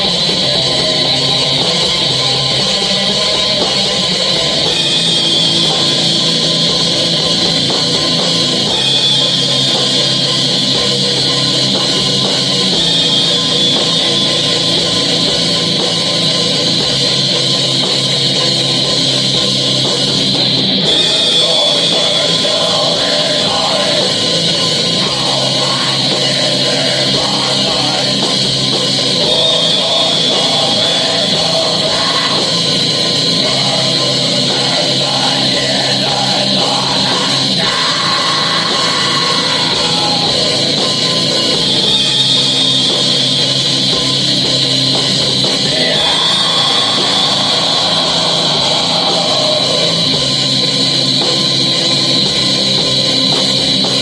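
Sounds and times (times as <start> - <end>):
metal band playing: 0.0 - 54.0.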